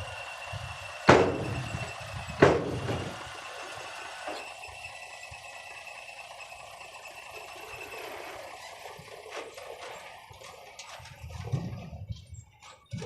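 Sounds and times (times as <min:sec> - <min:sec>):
distant machinery hiss: 0:00.0 - 0:10.3.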